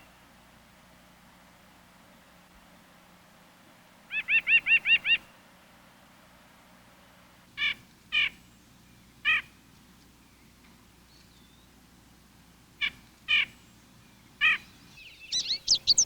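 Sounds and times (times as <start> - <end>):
bird calling: 4.1 - 5.4, 7.6 - 8.6, 9.2 - 9.6, 12.8 - 16.0.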